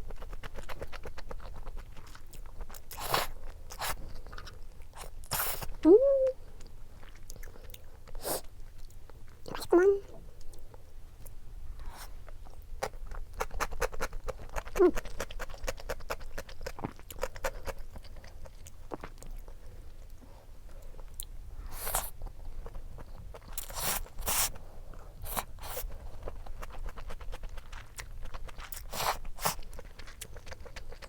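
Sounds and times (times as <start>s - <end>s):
wet chewing: 0.1s - 5.8s, 11.9s - 20.2s, 25.2s - 31.0s.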